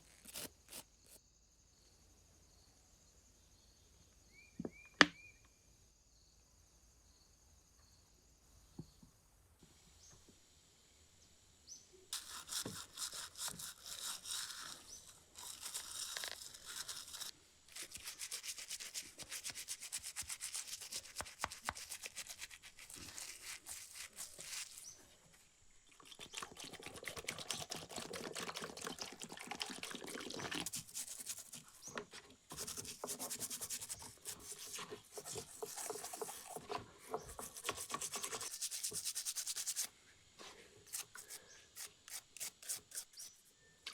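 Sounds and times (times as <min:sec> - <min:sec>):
hand scrubbing on metal: 0:12.2 - 0:25.0, 0:30.4 - 0:31.9, 0:32.5 - 0:39.9, 0:40.8 - 0:43.5.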